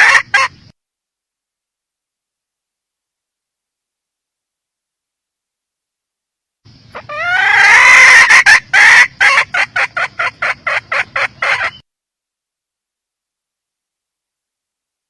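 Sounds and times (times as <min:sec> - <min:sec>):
hen clucking: 0:00.0 - 0:00.6, 0:06.9 - 0:11.8
hen rising call: 0:06.9 - 0:11.8.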